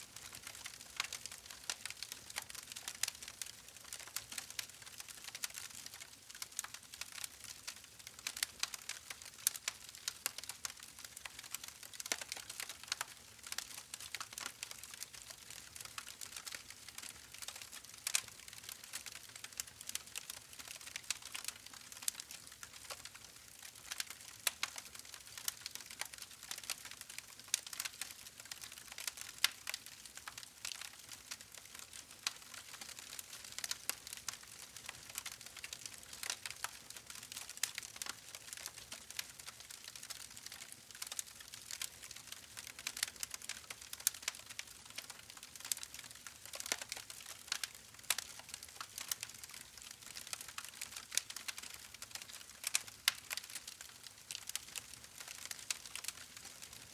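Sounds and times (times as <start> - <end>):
wood fire crackling: 0.1 - 56.9.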